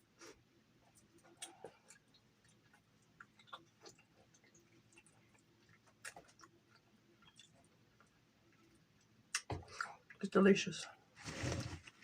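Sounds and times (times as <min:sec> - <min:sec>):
person chewing with mouth clicks: 0:00.2 - 0:08.6.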